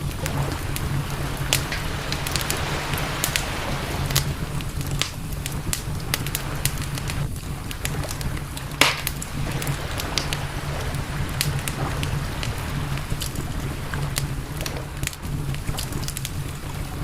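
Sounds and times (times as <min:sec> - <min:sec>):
campfire crackling and popping: 0:00.0 - 0:17.0
low rumble: 0:00.0 - 0:17.0.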